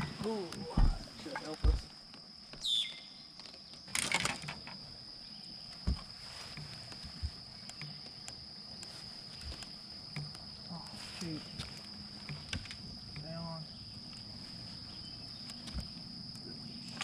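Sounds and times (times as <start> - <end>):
insects chirring: 0.0 - 17.0
rustle: 0.0 - 17.0.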